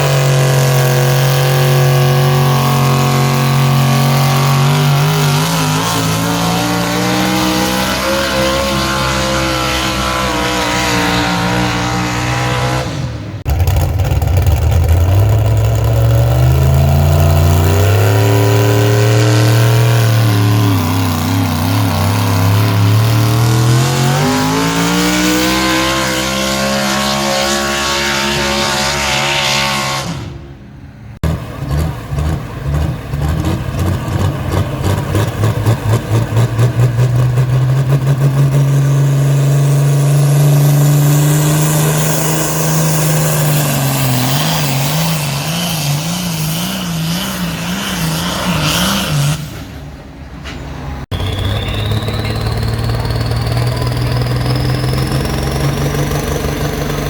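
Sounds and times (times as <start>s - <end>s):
engine running under load: 0.0s - 57.0s
engine winding up: 51.1s - 57.0s.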